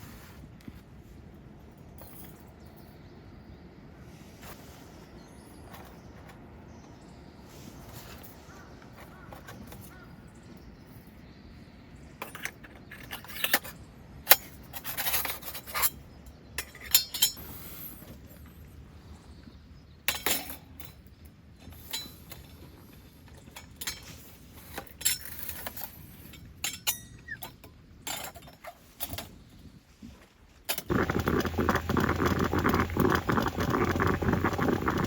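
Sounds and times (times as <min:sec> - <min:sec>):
low steady background noise: 0:00.0 - 0:35.0.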